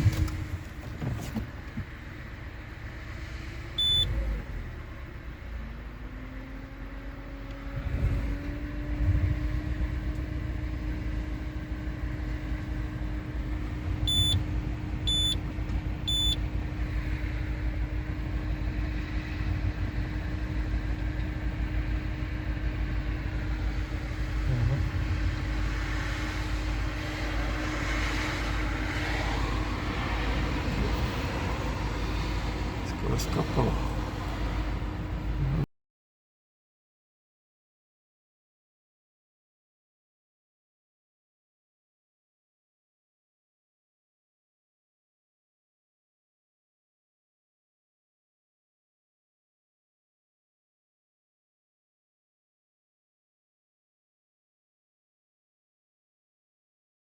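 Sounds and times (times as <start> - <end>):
short high electronic beeps: 14.1 - 14.4, 16.1 - 16.4.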